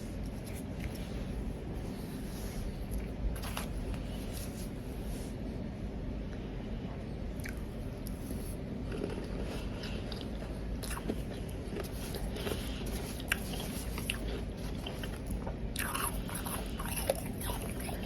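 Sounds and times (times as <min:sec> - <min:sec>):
low background hum: 0:00.0 - 0:18.0
ice being chewed: 0:07.4 - 0:18.0.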